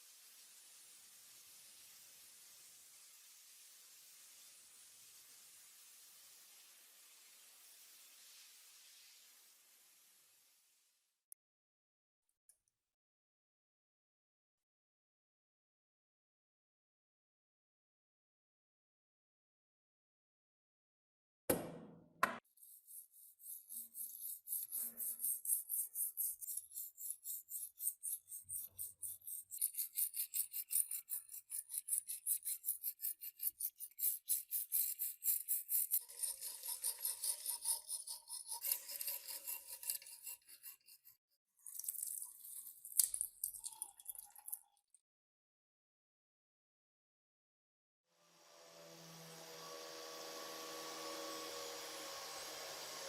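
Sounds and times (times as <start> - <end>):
sharp knock: 21.5 - 22.4
hand tool scraping metal: 22.6 - 41.2.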